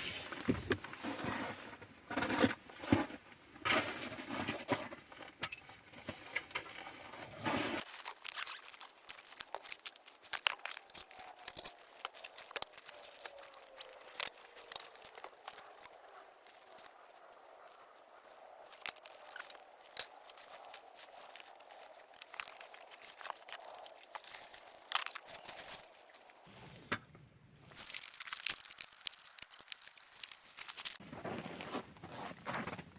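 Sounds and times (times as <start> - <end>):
packaging crinkling and rustling: 7.8 - 17.0, 18.7 - 26.5, 27.7 - 32.9.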